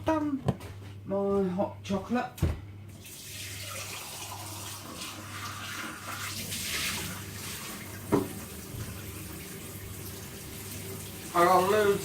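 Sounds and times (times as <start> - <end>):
water running from a tap: 2.9 - 12.0.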